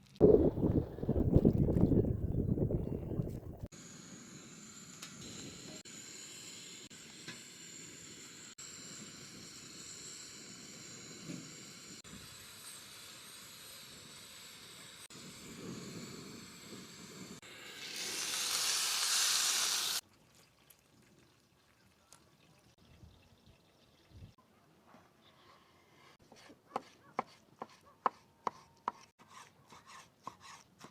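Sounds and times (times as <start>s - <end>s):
food sizzling in a pan: 17.5s - 20.0s.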